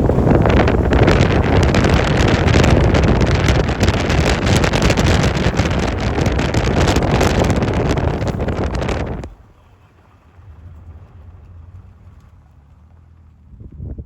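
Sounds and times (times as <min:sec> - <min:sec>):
strong wind buffeting microphone: 0:00.0 - 0:09.4.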